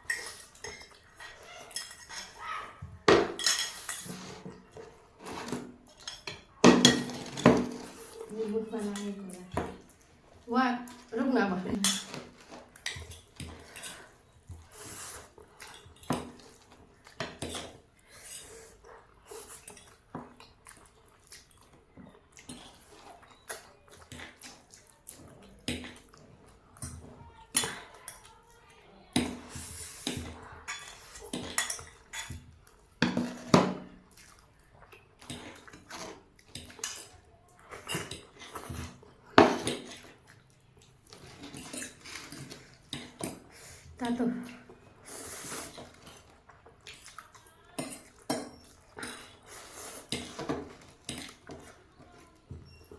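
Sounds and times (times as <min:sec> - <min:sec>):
utensils clinking against a bowl: 0:00.0 - 0:20.4, 0:22.0 - 0:34.0, 0:35.0 - 0:52.9
eating sounds: 0:07.2 - 0:33.0, 0:33.9 - 0:52.9.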